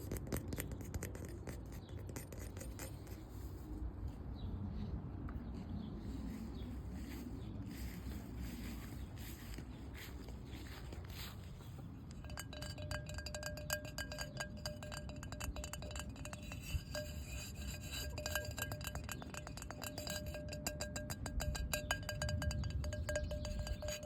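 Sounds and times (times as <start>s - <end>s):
rapid tapping on ringing object: 12.0s - 24.0s.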